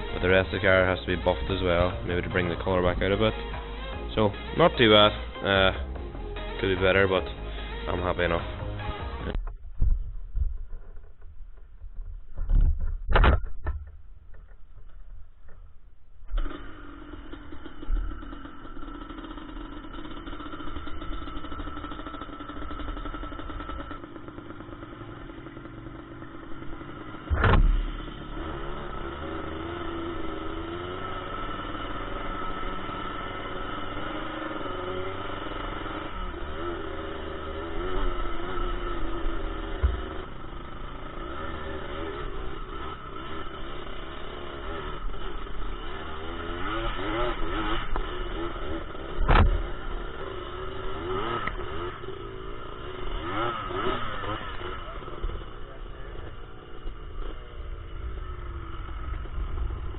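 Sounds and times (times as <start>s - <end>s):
quad engine running and revving: 0.0s - 9.6s, 16.3s - 59.9s
loud thump: 12.0s - 14.0s, 27.2s - 28.0s, 49.2s - 49.7s
sharp knocks: 27.3s - 27.9s, 49.2s - 49.6s.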